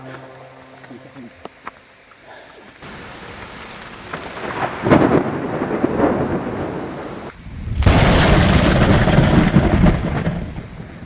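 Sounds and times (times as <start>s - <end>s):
thunder rumbling: 2.8s - 11.0s.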